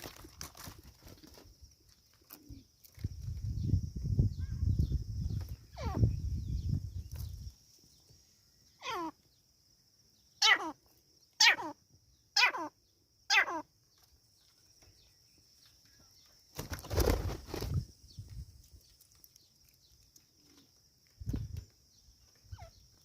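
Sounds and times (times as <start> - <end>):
partridge calling: 8.8 - 9.2, 10.4 - 13.7.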